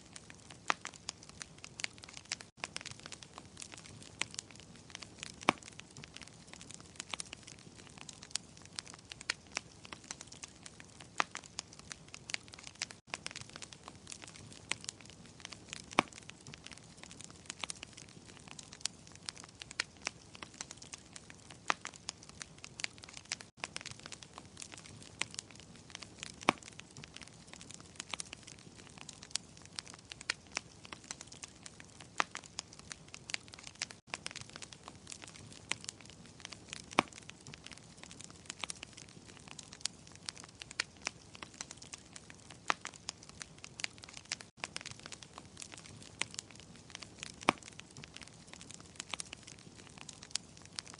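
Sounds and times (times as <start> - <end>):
wood fire crackling and popping: 0.0 - 50.9.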